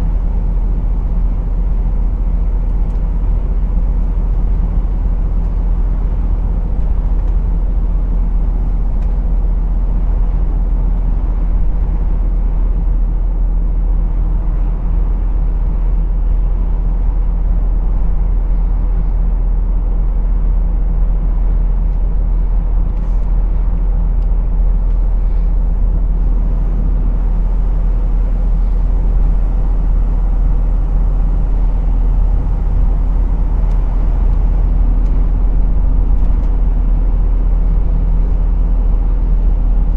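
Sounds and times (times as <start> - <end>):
diesel engine droning: 0.0 - 39.9
road noise: 0.0 - 39.9.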